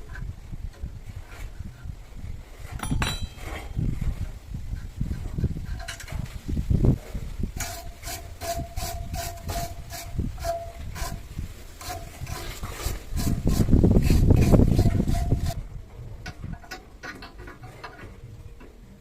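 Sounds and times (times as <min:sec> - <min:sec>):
low thumps and handling knocks: 0:02.6 - 0:07.3.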